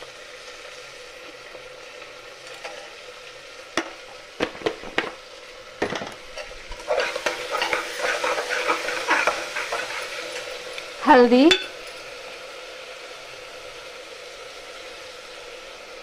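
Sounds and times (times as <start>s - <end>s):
onions and tomatoes sizzling: 0.0s - 16.0s
spoon stirring and scraping vegetables: 5.8s - 10.6s
steel spoon clinking on cooker: 11.5s - 12.0s.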